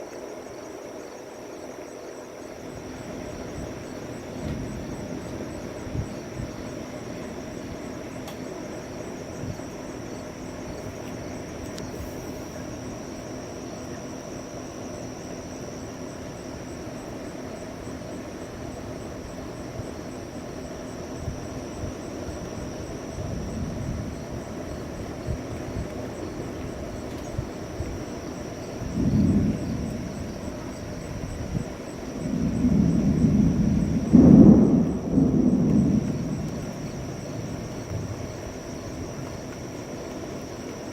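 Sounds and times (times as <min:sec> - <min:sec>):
faint high whine: 0:00.0 - 0:40.9
low outdoor background rush: 0:00.0 - 0:40.9
distant thunder rumbling: 0:02.9 - 0:09.9, 0:28.6 - 0:39.6.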